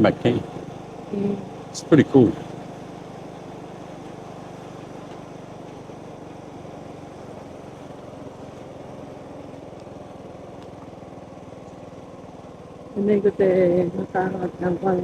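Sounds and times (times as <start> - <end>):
motorbike engine cruising: 0.0 - 15.0
road and wind noise: 0.0 - 15.0.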